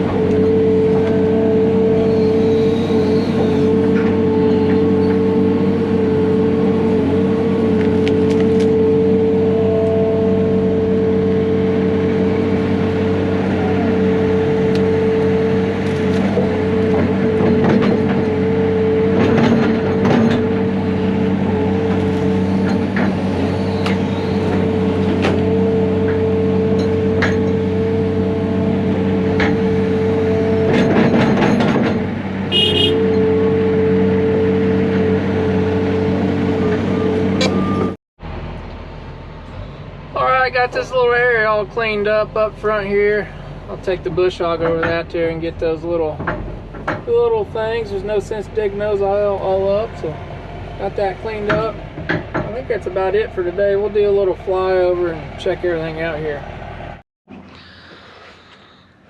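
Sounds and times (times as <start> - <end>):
steady whine: 0.0 - 38.0
diesel engine running: 0.0 - 59.0
short knocks and clanks: 16.2 - 20.8, 30.6 - 33.1, 46.0 - 47.2, 51.3 - 52.9.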